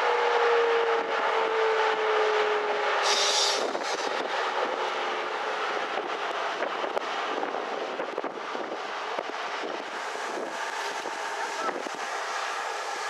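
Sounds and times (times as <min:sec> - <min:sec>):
diesel freight train approaching: 0:00.0 - 0:13.0
wind buffeting microphone: 0:02.8 - 0:13.0.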